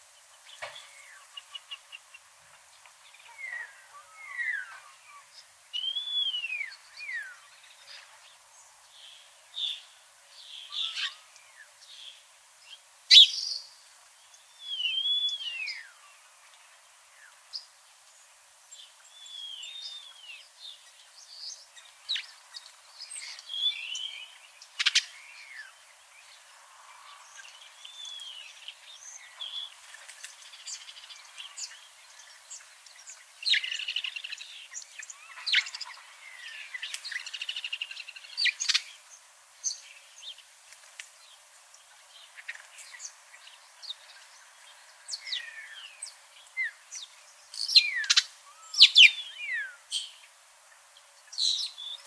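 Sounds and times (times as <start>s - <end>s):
bird chirps: 3.0s - 8.3s, 9.0s - 16.2s, 19.0s - 26.4s, 30.4s - 40.4s, 42.1s - 50.3s
birds whistling: 3.3s - 7.5s, 10.6s - 11.6s, 13.1s - 13.7s, 14.6s - 16.0s, 47.6s - 50.2s.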